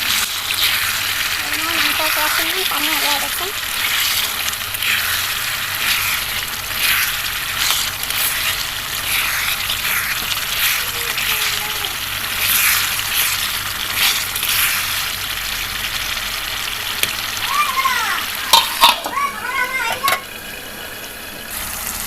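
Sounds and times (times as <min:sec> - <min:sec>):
spoon stirring and scraping: 0:00.0 - 0:16.1
chicken sizzling in a pan: 0:00.0 - 0:22.0.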